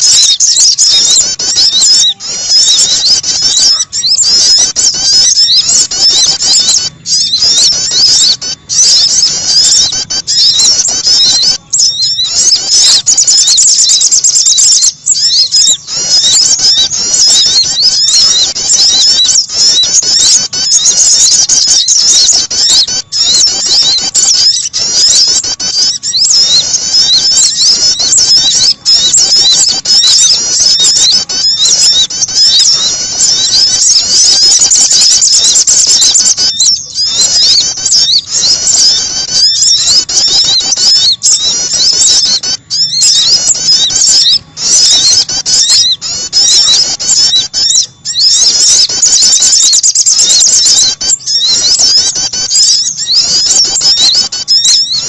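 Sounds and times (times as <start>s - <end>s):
songbirds chirping and twittering: 0.0s - 55.0s.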